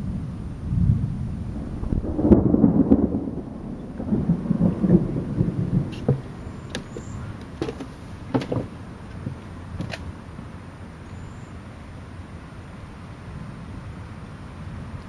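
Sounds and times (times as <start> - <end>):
thunder rumble: 0.0 - 10.5.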